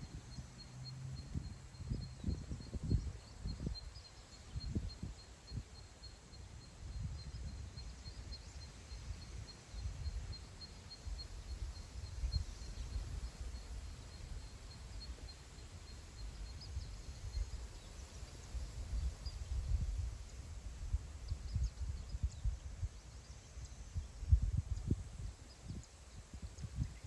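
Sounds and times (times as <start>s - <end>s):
wind buffeting microphone: 1.2s - 5.6s, 23.7s - 27.0s.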